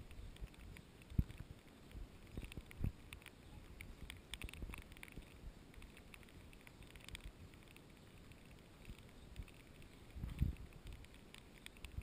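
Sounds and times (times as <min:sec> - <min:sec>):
wind rumble on microphone: 0:00.0 - 0:05.9, 0:08.8 - 0:11.2
raindrops tapping on camera: 0:00.0 - 0:12.0.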